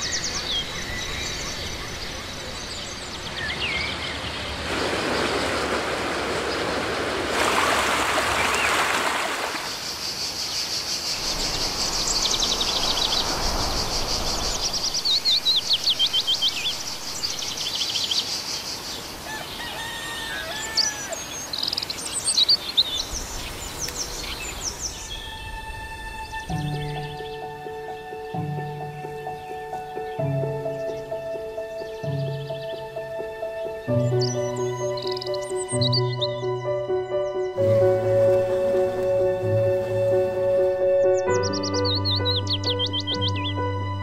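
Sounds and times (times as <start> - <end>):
songbirds chirping and singing: 0.0 - 5.6, 9.9 - 44.0
rushing noise: 11.1 - 16.2.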